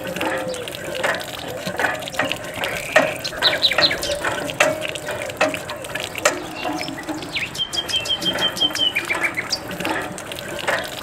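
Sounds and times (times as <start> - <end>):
water spurting from hand pump: 0.0 - 11.0
bird chirps: 2.2 - 9.7.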